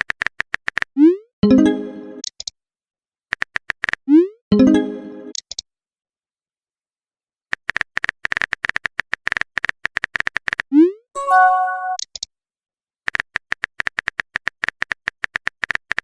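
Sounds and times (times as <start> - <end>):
message notification chime: 1.4 - 2.2, 4.6 - 5.3, 11.2 - 12.0
chime: 11.2 - 12.0.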